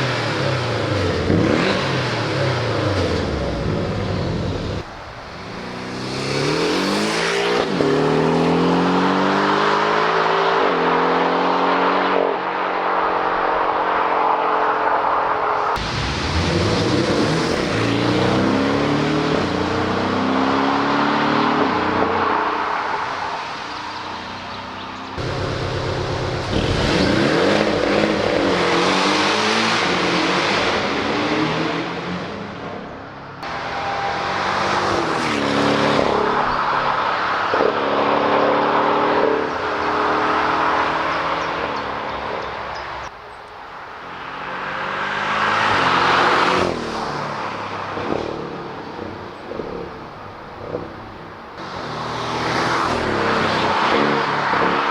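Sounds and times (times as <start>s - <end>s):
sports car engine accelerating: 23.8s - 32.3s.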